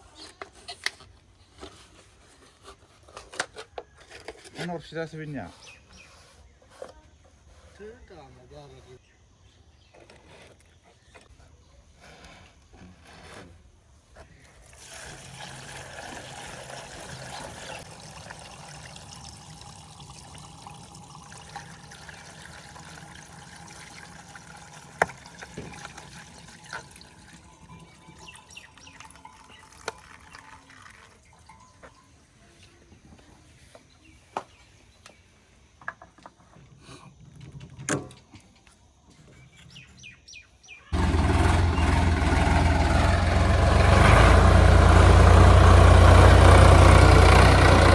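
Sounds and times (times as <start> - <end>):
tractor engine running: 41.0 - 47.9.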